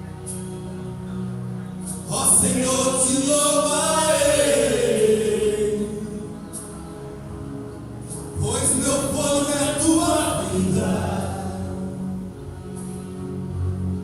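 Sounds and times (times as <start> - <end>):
men's choir singing a hymn: 2.1 - 6.3, 8.4 - 12.1.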